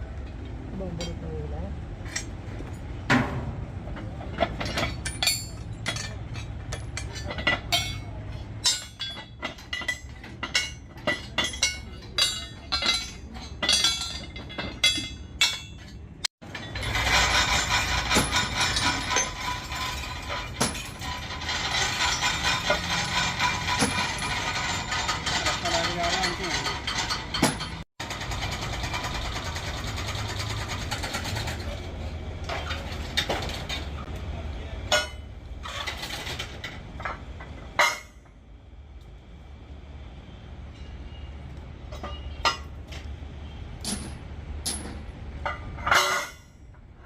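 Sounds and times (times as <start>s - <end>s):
metal clinking and knocking: 2.0s - 34.1s, 34.9s - 38.4s, 41.8s - 47.0s
fast mechanical clatter: 16.4s - 34.1s.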